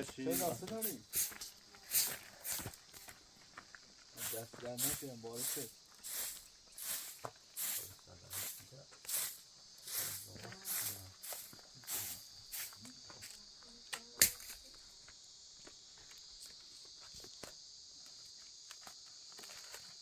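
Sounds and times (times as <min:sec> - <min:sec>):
short scuffing noises: 0:00.0 - 0:05.0
insect chirring: 0:00.0 - 0:20.0.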